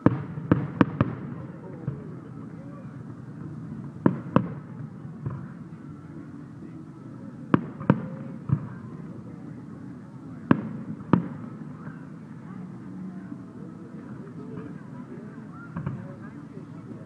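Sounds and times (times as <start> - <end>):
fireworks bangs: 0.0 - 5.9, 7.5 - 9.2, 10.4 - 12.0, 15.5 - 16.4.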